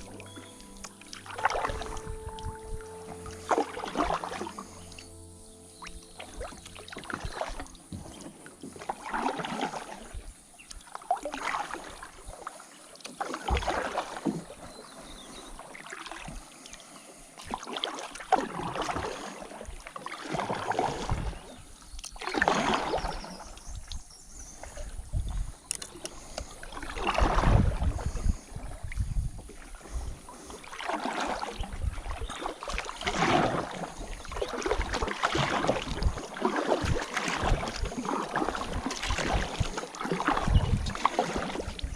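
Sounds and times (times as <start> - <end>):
kayak paddle splashing water: 0.0 - 41.9.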